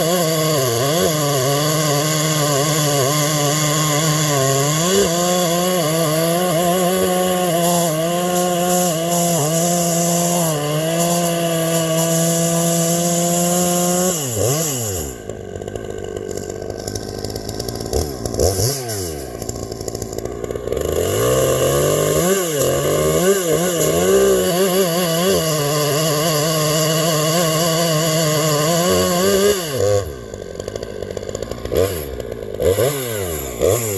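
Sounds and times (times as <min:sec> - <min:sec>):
chainsaw revving: 0:00.0 - 0:33.9.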